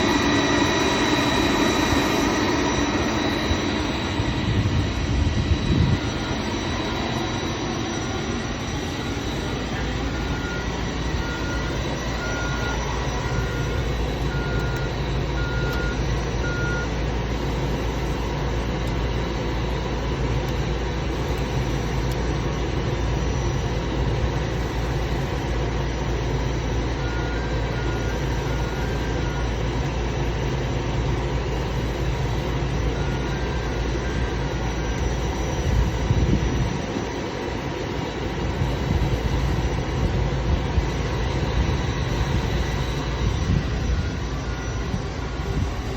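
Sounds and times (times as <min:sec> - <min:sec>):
faint high whine: 0:00.0 - 0:45.9
low machinery drone: 0:00.0 - 0:45.9.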